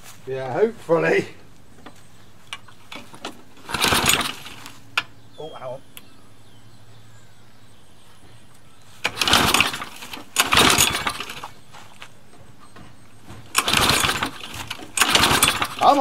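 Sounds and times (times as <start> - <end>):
lawn mower pull cord starter: 2.6 - 5.1, 9.0 - 11.6, 13.4 - 16.0.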